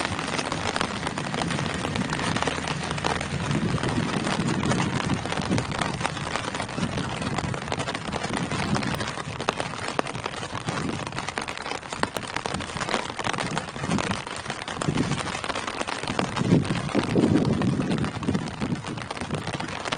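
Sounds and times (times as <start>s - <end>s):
deep low pulsing sound: 0.0s - 8.9s
rain on tree leaves: 0.0s - 19.9s.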